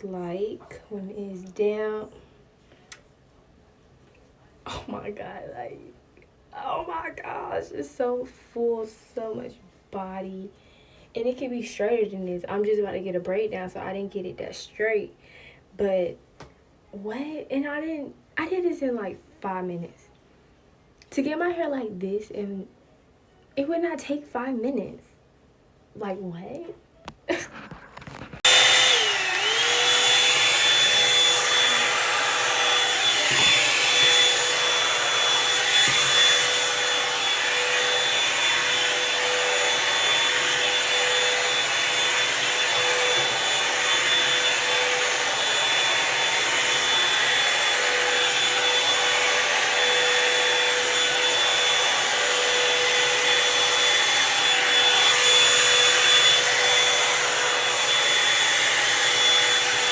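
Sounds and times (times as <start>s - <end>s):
hair dryer motor whine: 27.5s - 59.9s.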